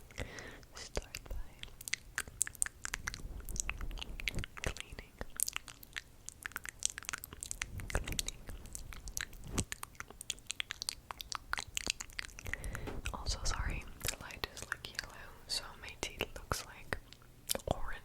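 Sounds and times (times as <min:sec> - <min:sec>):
mouth clicks and pops: 0:01.6 - 0:13.2.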